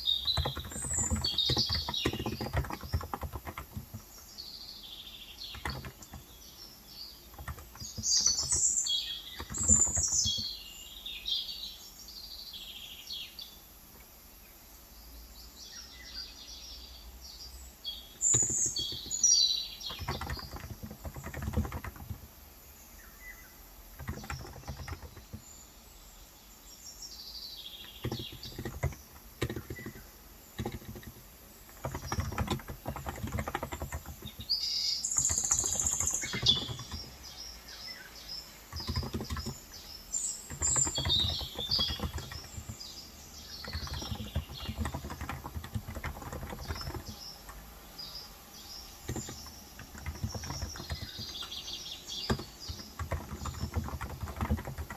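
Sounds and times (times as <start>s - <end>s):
typing on a keyboard: 0.0s - 4.4s, 5.4s - 6.6s, 7.2s - 10.7s, 18.1s - 22.4s, 23.9s - 25.6s, 27.8s - 37.4s, 38.6s - 54.9s
birds chirping: 0.0s - 54.9s.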